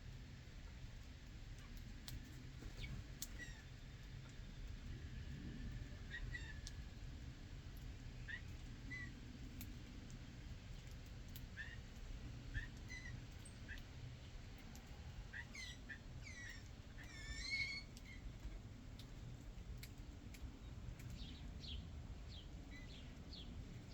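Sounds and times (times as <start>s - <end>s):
songbirds chirping: 10.8s - 23.9s.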